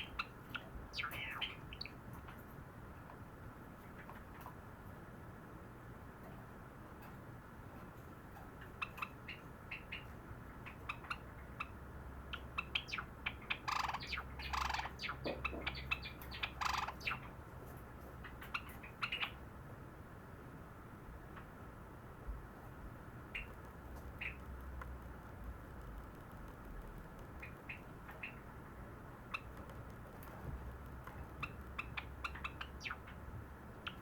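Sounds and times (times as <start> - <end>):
sparrow singing clicking notes: 0.0 - 2.4, 10.7 - 17.3, 23.3 - 28.6, 29.2 - 33.2, 33.8 - 34.0.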